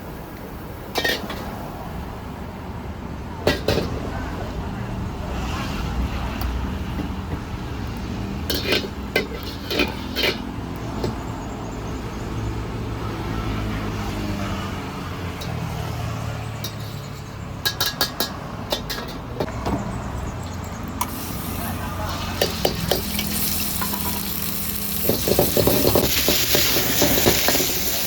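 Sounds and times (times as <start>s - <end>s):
metal utensils clinking on pans: 0.9s - 1.5s, 8.4s - 10.5s, 16.6s - 19.5s, 22.0s - 28.0s.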